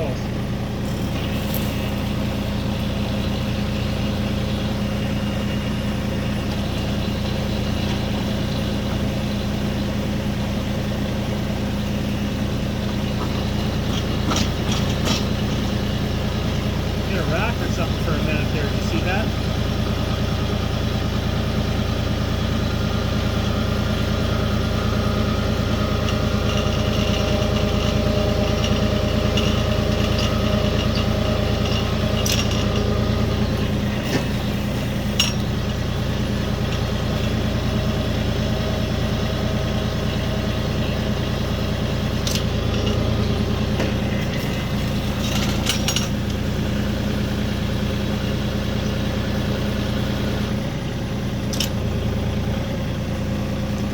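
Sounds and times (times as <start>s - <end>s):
diesel tractor engine running: 0.0s - 53.9s
sharp clicks and knocks: 13.2s - 15.7s, 51.5s - 51.8s.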